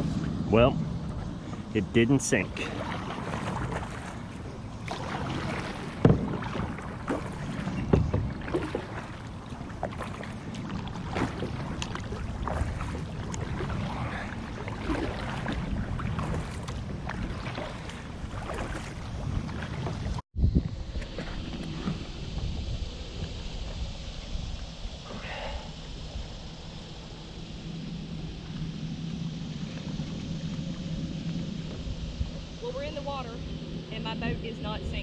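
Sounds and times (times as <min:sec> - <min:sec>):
wind on microphone: 0:00.0 - 0:35.0
paddle splashes and drips: 0:01.4 - 0:20.2
paddle knocking against hull: 0:04.9 - 0:13.9, 0:14.7 - 0:20.2.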